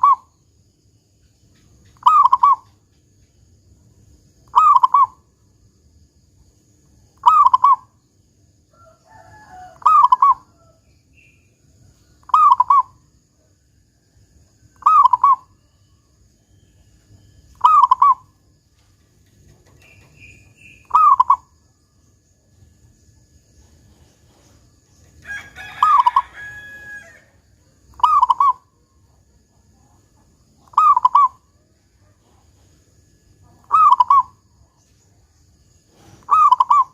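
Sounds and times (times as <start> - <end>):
dove cooing: 0.0 - 0.3, 2.0 - 2.8, 4.5 - 5.2, 7.2 - 7.9, 9.5 - 10.8, 12.2 - 13.0, 14.8 - 15.6, 17.6 - 18.4, 19.6 - 21.5, 25.8 - 26.4, 27.9 - 28.7, 30.6 - 31.4, 33.5 - 34.8, 35.9 - 36.9
faint small bird chirps: 0.0 - 3.6, 4.4 - 5.5, 6.4 - 27.0, 27.6 - 36.9.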